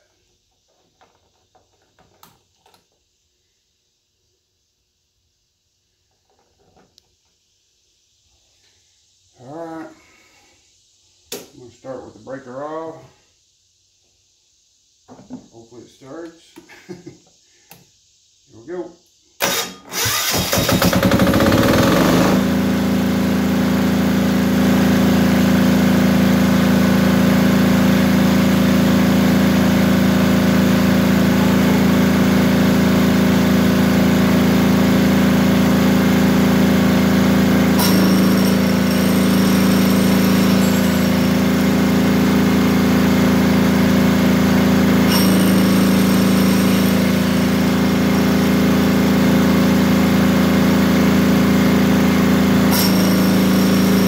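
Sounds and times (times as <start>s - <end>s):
diesel generator engine running: 19.4s - 54.0s.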